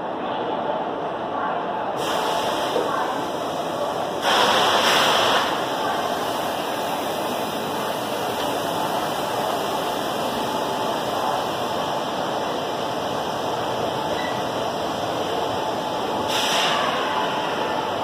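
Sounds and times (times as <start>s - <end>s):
train wheels rushing on rails: 2.0s - 18.0s.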